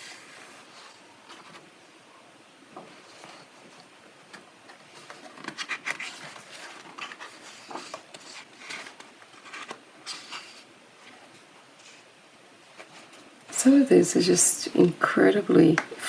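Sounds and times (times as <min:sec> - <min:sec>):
paper pages rustling and flicking: 0:02.8 - 0:12.1.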